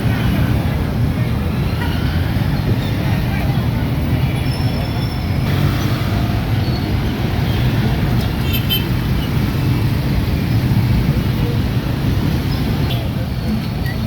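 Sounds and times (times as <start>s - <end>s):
street traffic rumble: 0.0s - 14.0s
motorcycles running: 5.3s - 14.0s.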